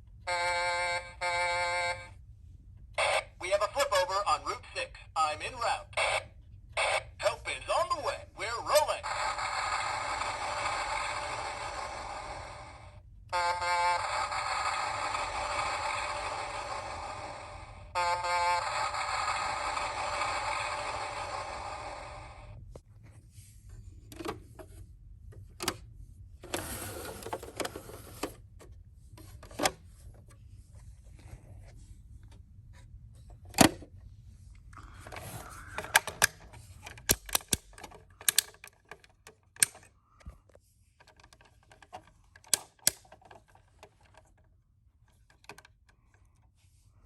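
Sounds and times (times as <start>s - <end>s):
plastic toy clicks and knocks: 35.7s - 39.9s, 41.0s - 44.5s.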